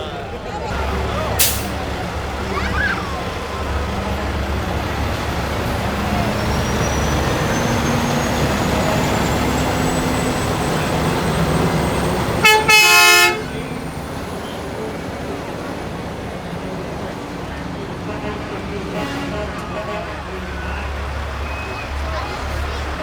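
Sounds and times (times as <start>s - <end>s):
diesel truck engines rumbling: 0.0s - 23.0s
truck horn blast: 0.9s - 4.8s, 6.2s - 14.6s, 17.9s - 22.0s.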